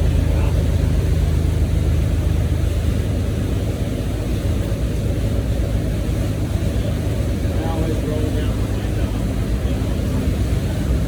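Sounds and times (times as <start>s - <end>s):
outboard engines droning: 0.0s - 11.0s.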